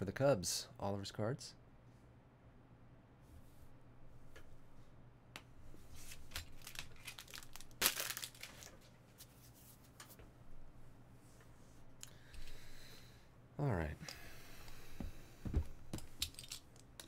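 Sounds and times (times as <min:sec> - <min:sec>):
plastic packaging crinkling: 0:06.0 - 0:08.8
plastic ripping: 0:06.2 - 0:08.8.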